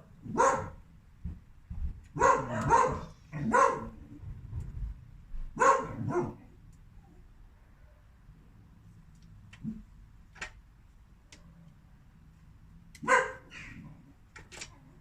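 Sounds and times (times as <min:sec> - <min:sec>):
dog barking: 0:00.2 - 0:00.8, 0:02.2 - 0:04.0, 0:05.6 - 0:06.5, 0:13.0 - 0:13.8.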